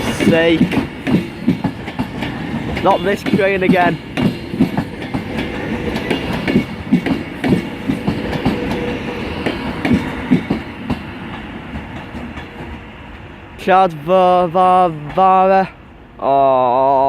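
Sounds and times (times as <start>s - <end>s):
train wheels clattering over rail joints: 0.0s - 12.9s
train rumble: 0.0s - 16.2s.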